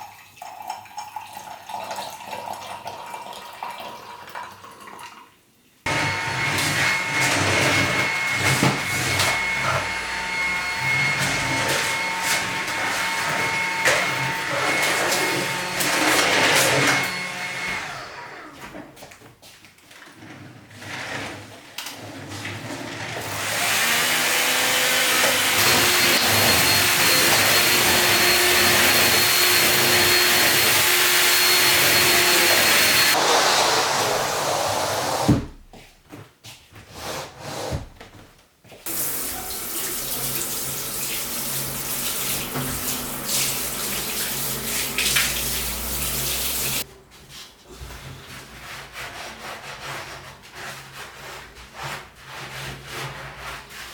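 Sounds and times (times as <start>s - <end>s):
water running from a tap: 38.9s - 46.9s.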